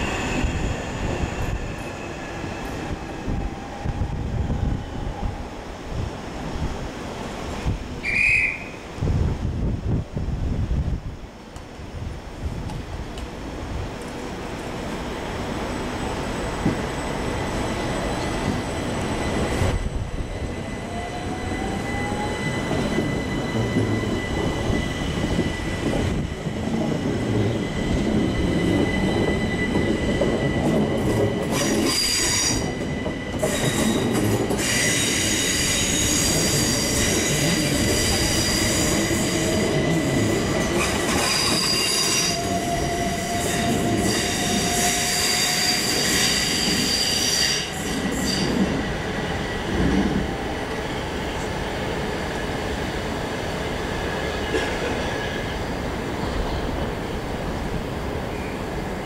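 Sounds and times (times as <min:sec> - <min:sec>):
high-pitched wheel squeal: 0:41.1 - 0:48.6.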